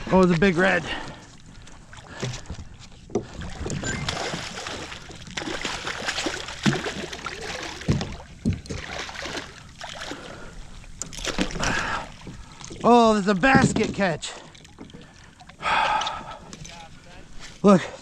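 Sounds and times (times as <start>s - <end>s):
water splashing and sloshing: 0.0s - 18.0s
fish thrashing at the surface: 3.2s - 15.4s.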